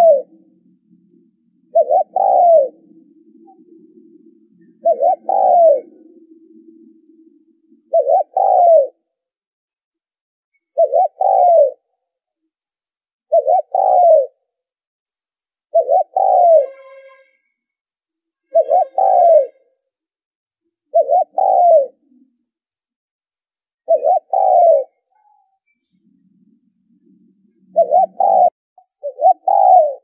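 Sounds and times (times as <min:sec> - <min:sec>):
dove cooing: 0:00.0 - 0:09.1, 0:10.7 - 0:11.8, 0:13.3 - 0:14.4, 0:15.7 - 0:16.9, 0:18.5 - 0:19.6, 0:20.9 - 0:22.4, 0:23.9 - 0:25.4, 0:26.0 - 0:30.0.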